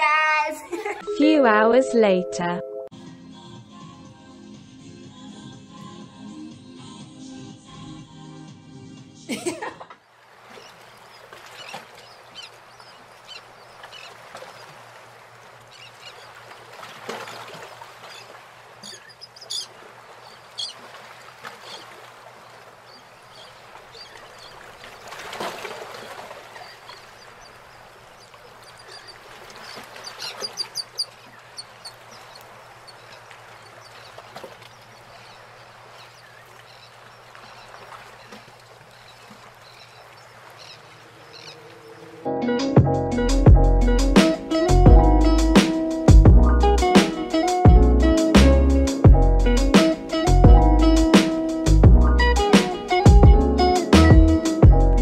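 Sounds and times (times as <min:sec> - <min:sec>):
birds calling: 0:09.8 - 0:42.3.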